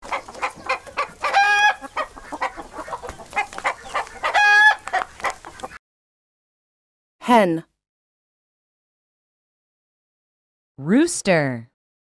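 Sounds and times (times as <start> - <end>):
hen clucking: 0.0 - 5.8
hen squawk: 0.1 - 5.8.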